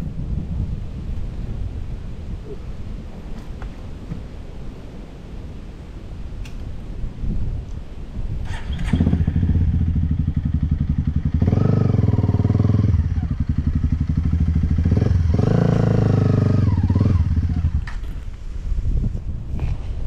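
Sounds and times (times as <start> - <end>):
dirt bike engine revving: 8.4 - 18.1.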